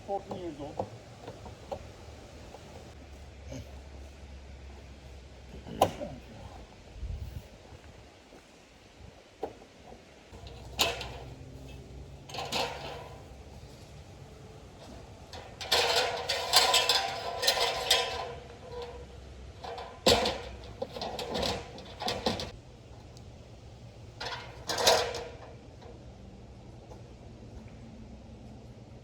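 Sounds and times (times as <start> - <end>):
objects clattering and knocking: 10.4 - 14.0, 14.8 - 22.6, 24.2 - 25.6.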